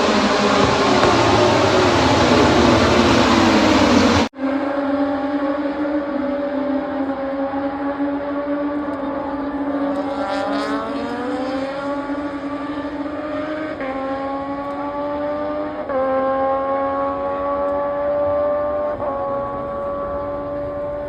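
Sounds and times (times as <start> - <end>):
racing motorcycle engines revving: 0.0 - 21.0.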